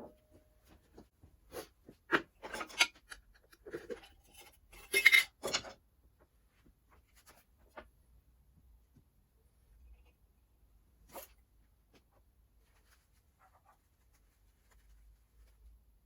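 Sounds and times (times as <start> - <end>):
hand tools and metal parts clinking: 2.4 - 5.8.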